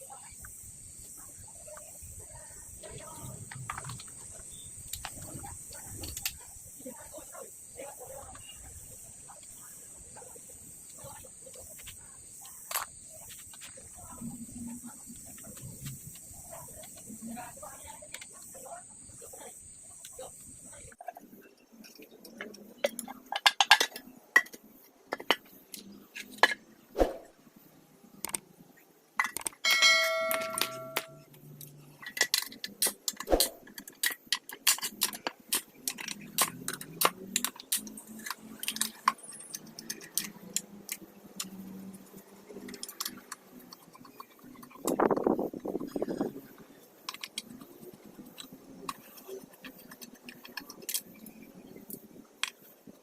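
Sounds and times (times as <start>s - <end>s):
metal tools clinking and knocking: 29.2s - 31.2s
metal piece ringing: 29.6s - 31.2s.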